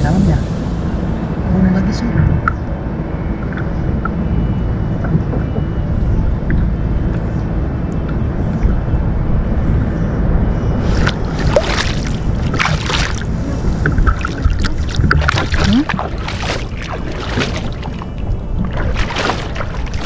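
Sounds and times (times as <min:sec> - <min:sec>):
low rumble: 0:00.0 - 0:20.0
water splashing against kayak: 0:10.8 - 0:20.0.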